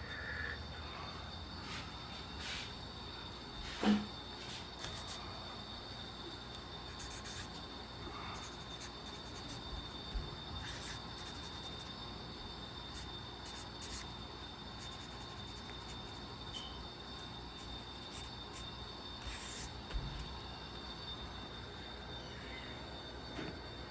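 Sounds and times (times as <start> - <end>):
faint high whine: 0.0 - 23.9
pencil sketching on paper: 4.8 - 5.2, 6.8 - 20.3.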